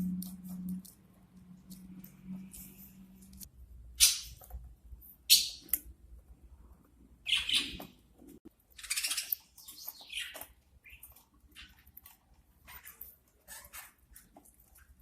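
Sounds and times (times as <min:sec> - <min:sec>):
budgerigar chirping: 0:05.3 - 0:05.7, 0:07.2 - 0:07.9.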